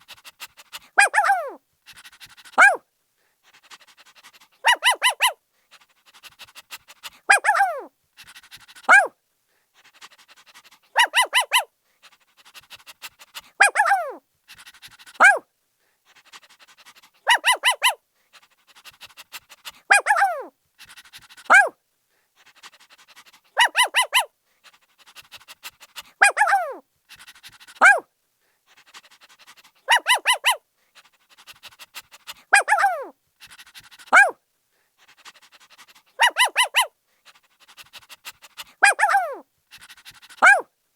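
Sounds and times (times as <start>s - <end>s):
puppy yipping and yelping: 0.2s - 2.8s, 4.4s - 5.4s, 6.2s - 9.1s, 10.6s - 11.7s, 13.1s - 15.4s, 16.9s - 18.0s, 19.8s - 21.7s, 23.6s - 24.3s, 26.0s - 28.1s, 28.9s - 30.6s, 31.4s - 34.4s, 35.3s - 40.7s.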